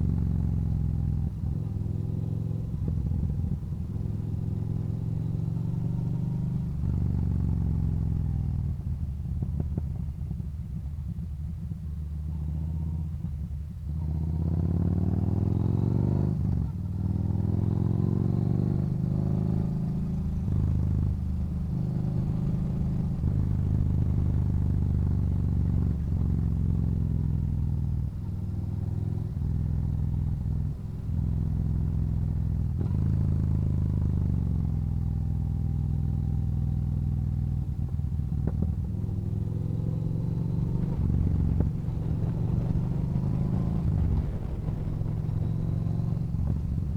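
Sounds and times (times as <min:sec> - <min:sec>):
motorcycle engine shifting gears: 0:12.2 - 0:46.9.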